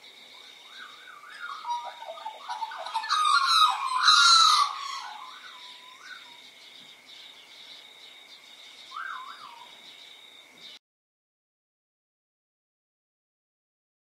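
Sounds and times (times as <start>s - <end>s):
birds whistling: 0.3s - 10.0s
harsh bird squawking: 0.8s - 6.2s.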